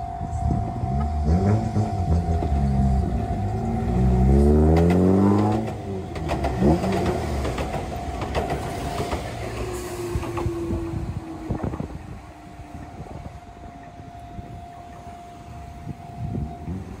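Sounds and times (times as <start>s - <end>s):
train rumble: 0.0s - 17.0s
train wheels clicking on rails: 0.5s - 13.8s.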